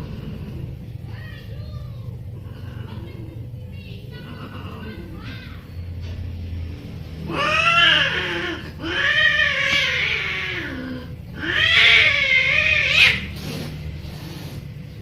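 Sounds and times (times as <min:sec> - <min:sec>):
cats yowling: 0:04.2 - 0:05.4, 0:07.2 - 0:13.5.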